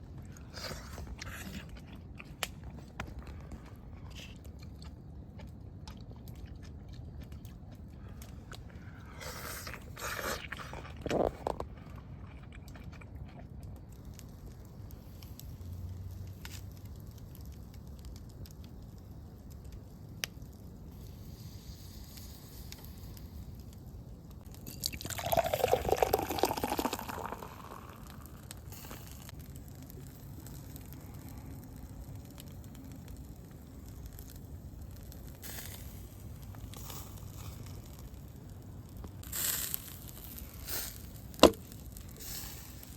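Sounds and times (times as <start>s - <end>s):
liquid pouring or splashing: 24.5s - 28.5s
liquid sounds: 24.5s - 31.5s.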